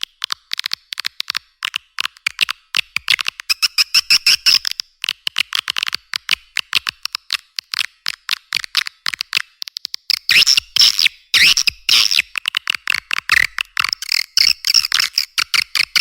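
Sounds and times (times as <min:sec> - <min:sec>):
swiftlet clicks and chirps: 0:03.3 - 0:04.8, 0:08.7 - 0:16.0.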